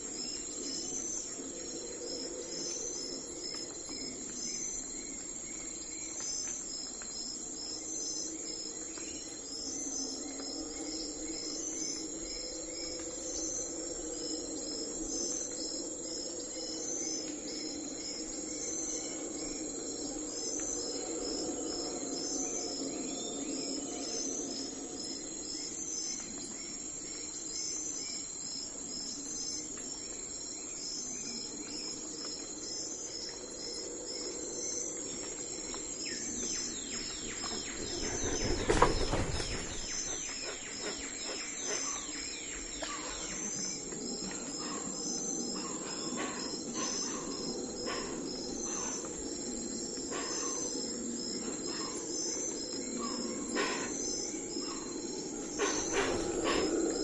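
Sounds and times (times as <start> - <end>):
crickets chirping: 0.0 - 57.0
bird calls: 36.1 - 43.7, 55.6 - 57.0.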